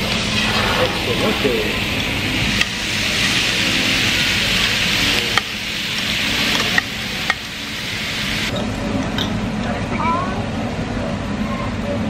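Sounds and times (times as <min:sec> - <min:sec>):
food sizzling on a grill: 0:00.0 - 0:08.5.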